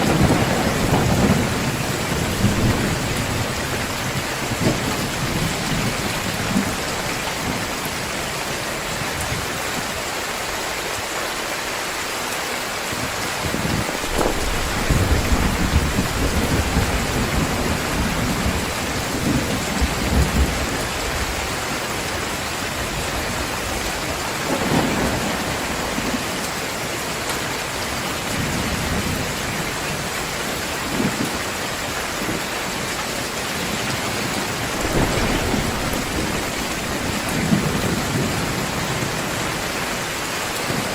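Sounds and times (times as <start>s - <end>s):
thunder rumbling: 0.0s - 9.4s, 13.0s - 21.6s, 33.6s - 40.9s
heavy rain falling: 0.0s - 40.9s.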